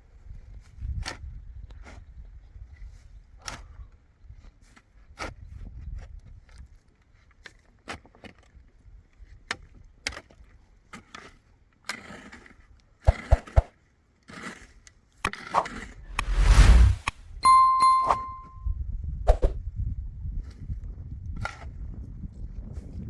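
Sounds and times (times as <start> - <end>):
loud rushing scrape: 15.5 - 17.4.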